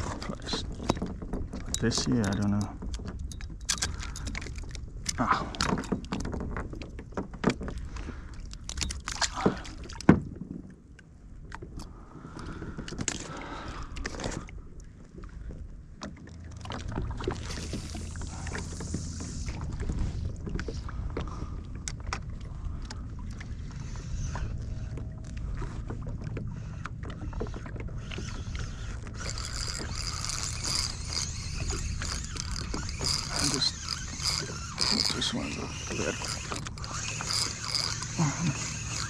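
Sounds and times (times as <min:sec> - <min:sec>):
clicks and knocks on boat: 0:00.0 - 0:23.5
low rumble of water and wind: 0:00.0 - 0:39.0.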